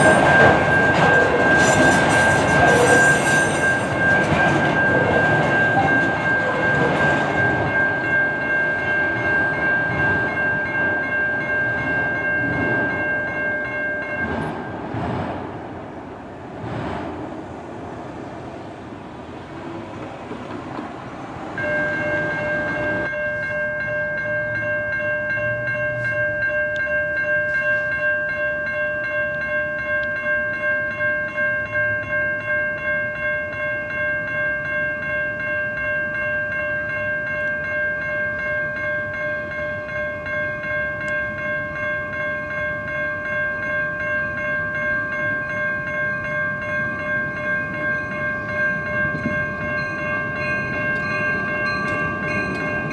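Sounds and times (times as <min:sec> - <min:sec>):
railroad crossing bell ringing: 0:00.0 - 0:15.0, 0:21.4 - 0:52.9
train rumble: 0:00.0 - 0:23.5, 0:38.4 - 0:52.9.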